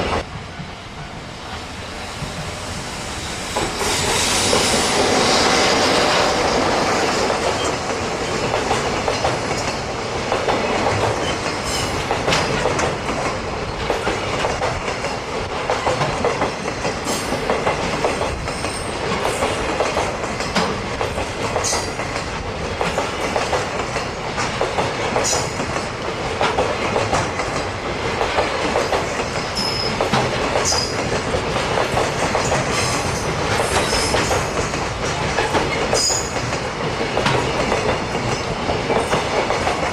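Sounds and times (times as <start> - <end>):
freight train wagons rolling: 0.0 - 39.9
train wheels squealing: 1.4 - 6.6, 11.2 - 12.1, 18.2 - 19.6, 21.6 - 22.2, 29.3 - 31.1, 32.4 - 34.6, 35.7 - 36.6.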